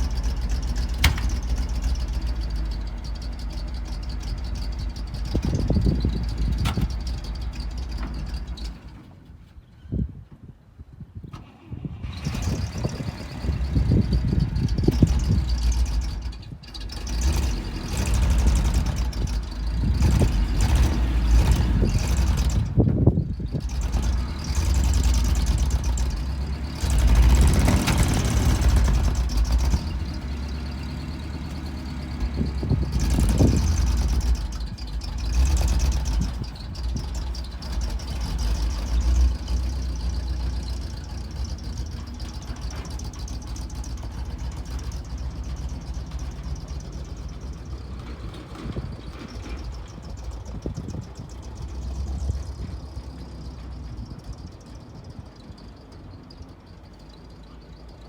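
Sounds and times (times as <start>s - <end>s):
truck engine running: 0.0s - 9.6s, 11.5s - 58.0s.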